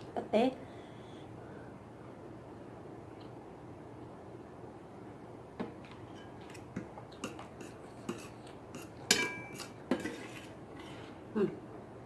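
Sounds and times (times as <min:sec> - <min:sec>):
metal utensil scraping a bowl: 0:07.2 - 0:11.0.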